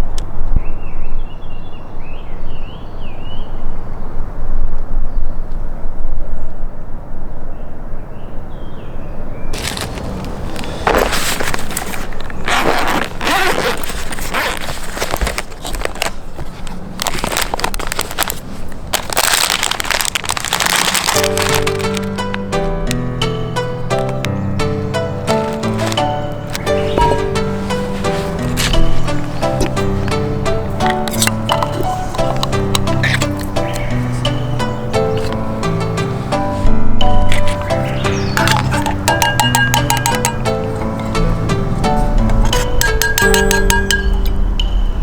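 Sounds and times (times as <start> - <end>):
campfire crackling and popping: 17.0 - 45.0
small birds chirping faintly: 21.2 - 45.0
steady low rush: 21.4 - 45.0.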